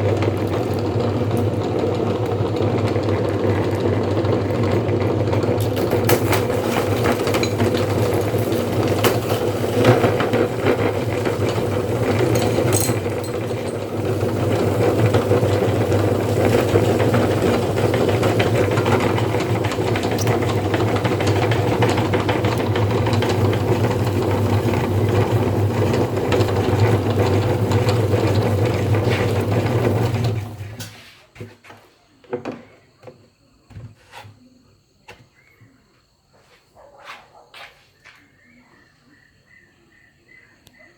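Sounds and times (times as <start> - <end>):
meat grinder running: 0.0 - 30.9.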